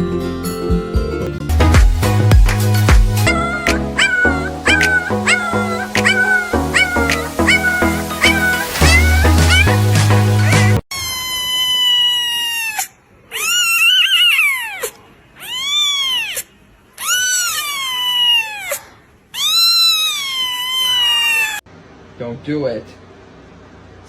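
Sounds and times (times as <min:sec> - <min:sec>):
music track: 0:00.0 - 0:10.8
cat meowing loudly: 0:03.3 - 0:09.8, 0:10.9 - 0:21.6.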